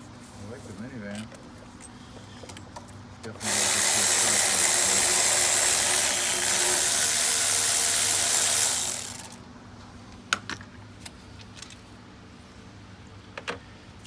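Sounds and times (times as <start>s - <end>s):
power tool motor running: 3.4s - 9.4s.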